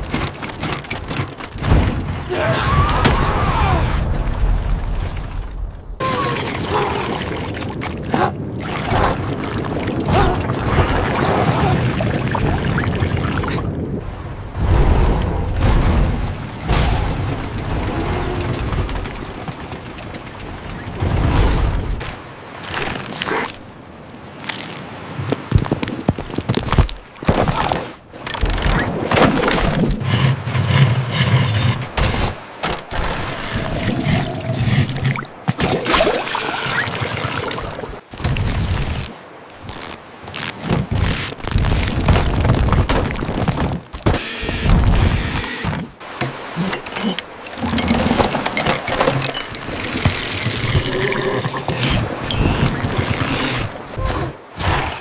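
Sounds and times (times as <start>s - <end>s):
knocks and clatters: 0.0s - 2.2s, 45.7s - 53.4s.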